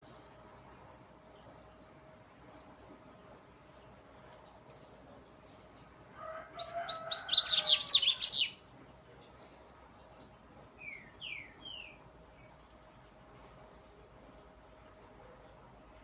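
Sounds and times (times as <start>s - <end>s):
bird singing whistled notes: 6.6s - 8.6s, 10.8s - 12.0s.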